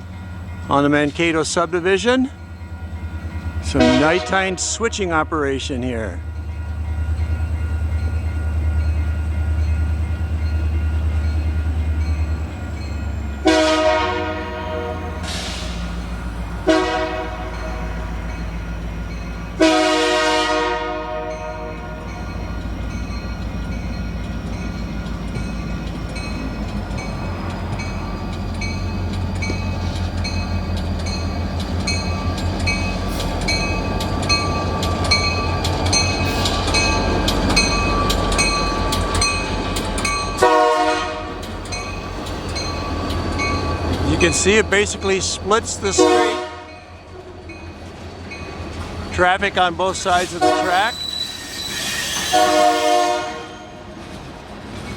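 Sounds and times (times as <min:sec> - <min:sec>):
diesel locomotive rumbling: 0:00.0 - 0:54.9
locomotive air horn blasts: 0:03.8 - 0:04.6, 0:13.4 - 0:15.6, 0:16.6 - 0:18.1, 0:19.6 - 0:22.1, 0:40.4 - 0:41.4, 0:45.9 - 0:46.8, 0:50.2 - 0:51.0, 0:52.2 - 0:53.8.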